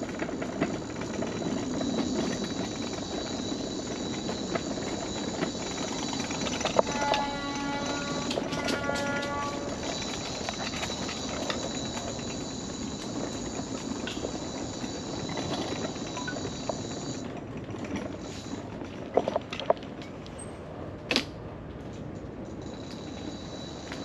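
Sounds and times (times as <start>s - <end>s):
scooter wheels clacking on boardwalk: 0.0s - 20.5s
high motor whine: 0.8s - 17.3s.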